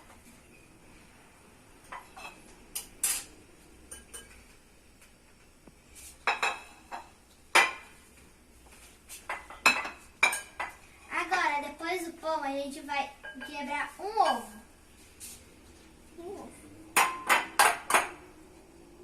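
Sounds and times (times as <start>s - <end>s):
dish and cutlery clinking: 1.9s - 4.5s, 6.2s - 7.9s, 9.3s - 10.8s, 17.0s - 18.2s.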